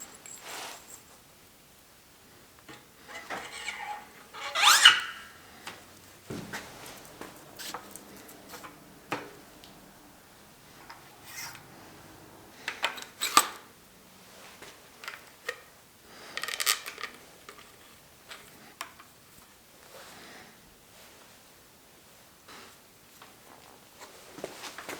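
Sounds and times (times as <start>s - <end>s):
metal parts rattling: 3.0s - 9.8s
metal tools clinking: 3.0s - 13.6s.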